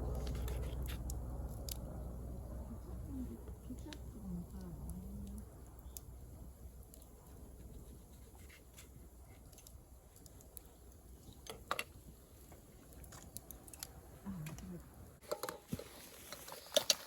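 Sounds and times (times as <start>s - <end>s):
low steady rumble: 0.0s - 8.2s
scattered clicks and crackles: 0.0s - 17.0s.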